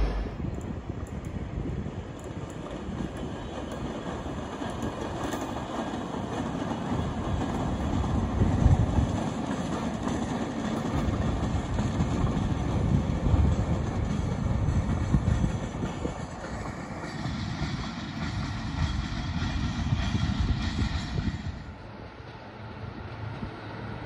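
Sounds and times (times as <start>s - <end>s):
diesel locomotive rumble: 0.0s - 24.0s
wheels rolling on rails: 2.0s - 19.5s.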